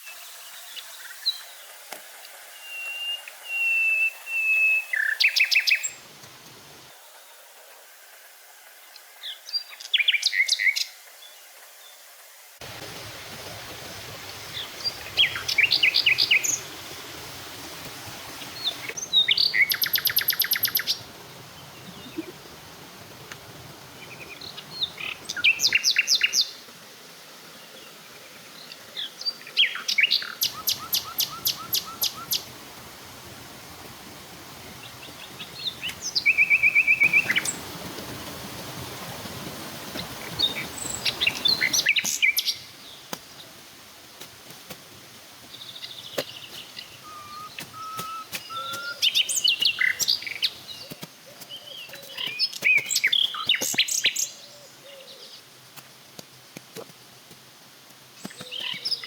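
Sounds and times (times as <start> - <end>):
background hiss: 0.0 - 59.0
birds calling and singing: 14.3 - 16.7, 18.4 - 22.4, 24.0 - 26.6, 28.5 - 32.5, 34.7 - 37.7, 40.0 - 43.5, 45.5 - 55.4, 58.2 - 59.0
bird trills: 47.0 - 50.5.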